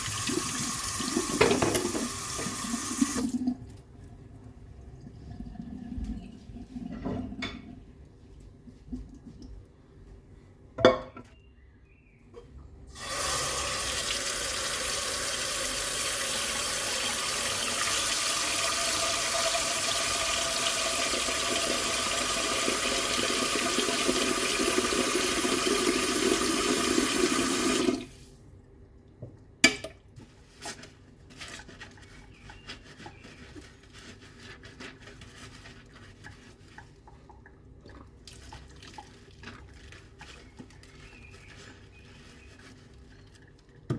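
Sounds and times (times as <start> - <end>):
tap running into sink: 0.1 - 3.4
dishes clattering: 1.4 - 2.1, 10.8 - 11.3.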